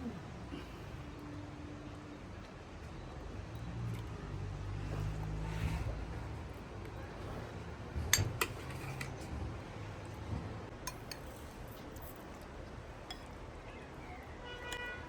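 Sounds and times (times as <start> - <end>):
dishes and spoons clinking: 10.7 - 13.4.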